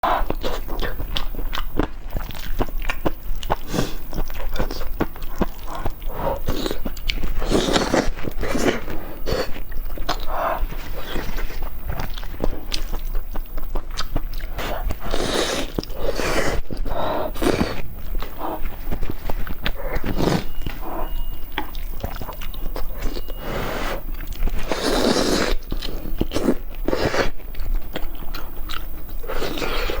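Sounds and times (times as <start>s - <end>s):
person chewing food: 0.0s - 30.0s.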